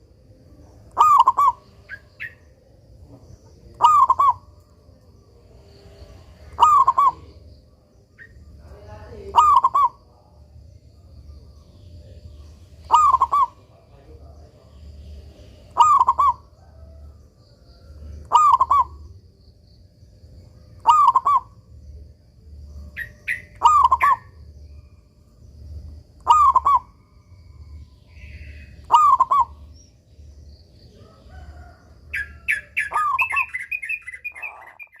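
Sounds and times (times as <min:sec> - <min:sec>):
dove cooing: 0:00.7 - 0:02.4, 0:03.5 - 0:04.6, 0:05.6 - 0:07.4, 0:09.3 - 0:10.0, 0:12.8 - 0:13.9, 0:15.5 - 0:19.2, 0:20.8 - 0:21.6, 0:23.0 - 0:24.4, 0:26.2 - 0:27.0, 0:28.1 - 0:29.7, 0:31.0 - 0:35.0
rapid high chirps: 0:32.1 - 0:35.0.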